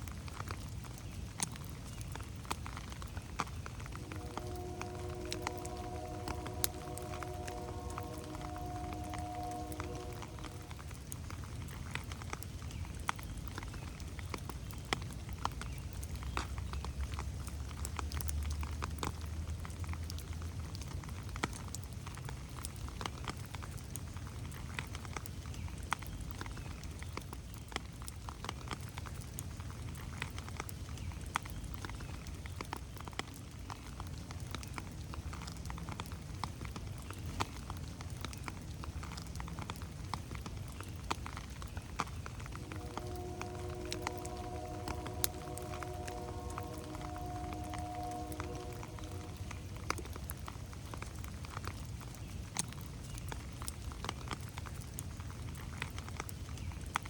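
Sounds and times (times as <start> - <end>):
rain dripping on leaves: 0.0 - 57.0
low rumble: 3.6 - 11.7, 42.2 - 51.5.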